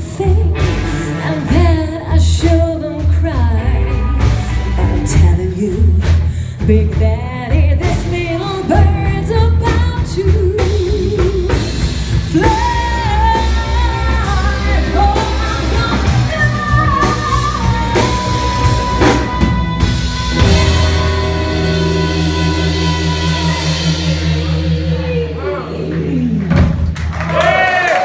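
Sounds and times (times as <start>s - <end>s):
drum kit: 0.0s - 28.0s
live blues band: 0.0s - 28.0s
person singing: 7.8s - 26.6s.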